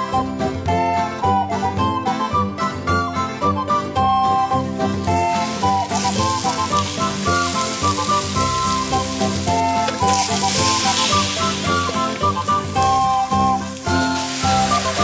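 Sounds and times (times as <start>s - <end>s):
background music: 0.0s - 15.0s
food sizzling in a pan: 4.8s - 15.0s.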